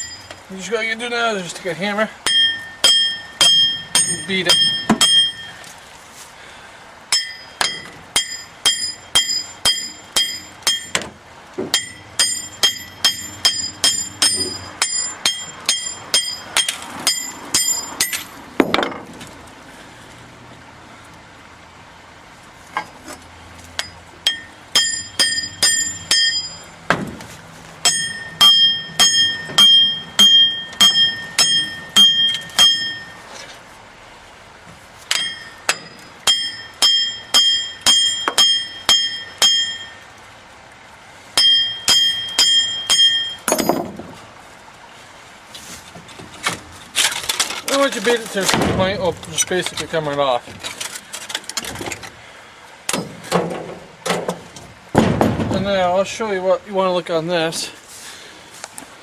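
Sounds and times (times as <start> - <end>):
hammer ringing on steel: 0.0 - 0.5, 2.2 - 5.6, 7.1 - 11.0, 11.7 - 18.4, 23.8 - 26.7, 27.8 - 33.2, 35.1 - 40.0, 41.4 - 43.8.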